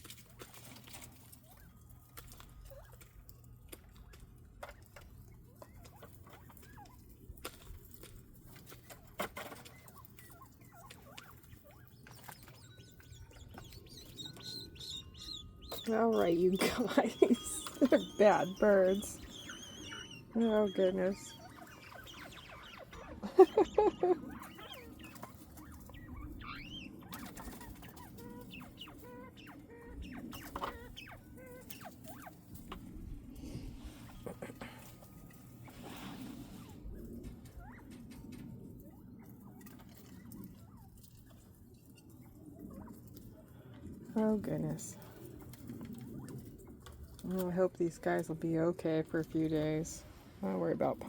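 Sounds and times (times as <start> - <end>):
quail chirping: 0.0 - 51.0
scratching in litter: 15.7 - 29.6, 33.4 - 37.8.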